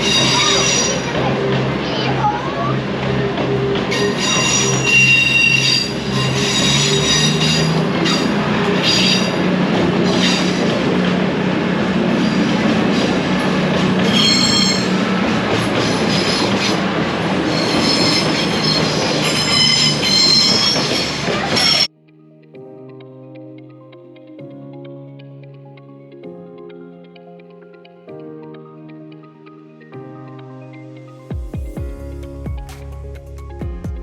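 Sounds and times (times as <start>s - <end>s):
train wheels squealing on rails: 0.0s - 11.2s, 12.0s - 21.9s
train humming: 0.0s - 21.9s.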